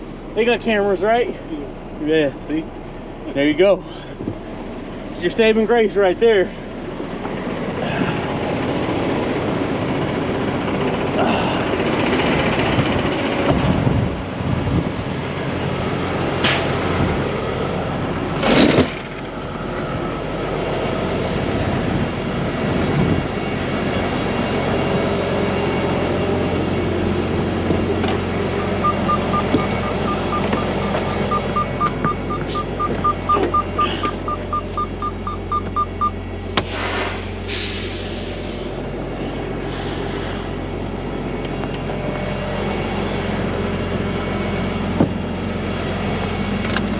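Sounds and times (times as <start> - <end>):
heavy truck engine idling: 0.0 - 46.9
rapid electronic beeping: 28.5 - 36.2.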